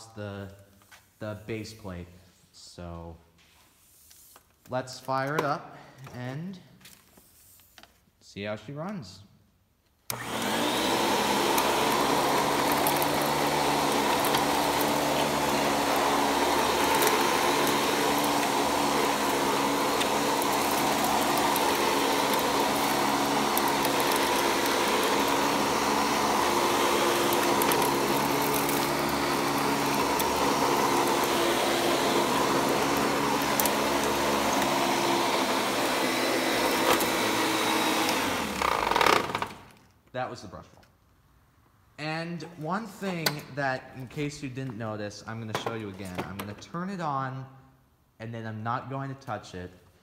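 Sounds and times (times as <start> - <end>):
upright vacuum cleaner running: 10.1 - 39.7.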